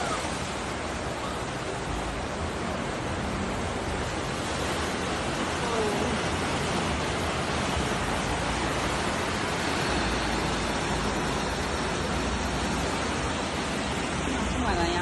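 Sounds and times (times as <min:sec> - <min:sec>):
rushing water hiss: 0:00.0 - 0:15.0.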